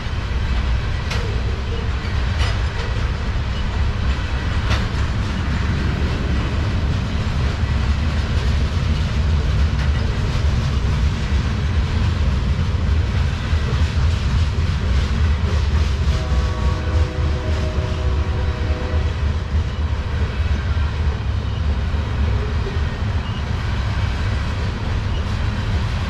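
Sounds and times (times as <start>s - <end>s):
freight train rumble: 0.0s - 26.0s
wheels clicking over rail joints: 0.5s - 15.7s.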